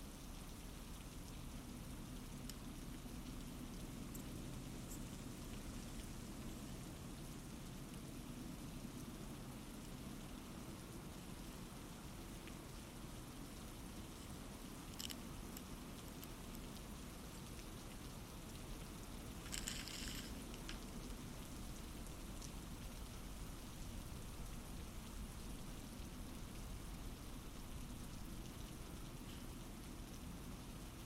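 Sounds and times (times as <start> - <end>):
soft rain patter: 0.0 - 31.0
light ticks: 0.1 - 8.1, 9.0 - 31.0
crinkling rustle: 13.6 - 30.3.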